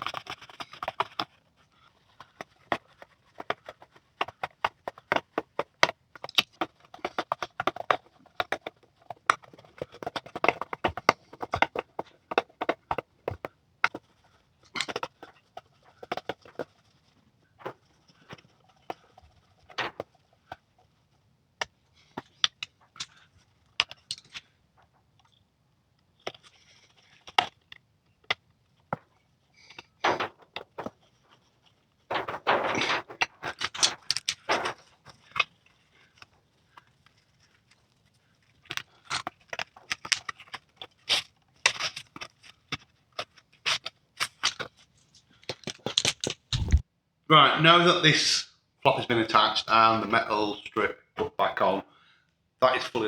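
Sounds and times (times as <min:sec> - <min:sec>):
rustling and scraping: 0:00.0 - 0:25.5, 0:26.2 - 0:46.8
clicks taps and knocks: 0:02.1 - 0:16.8, 0:28.9 - 0:31.1, 0:32.1 - 0:35.5.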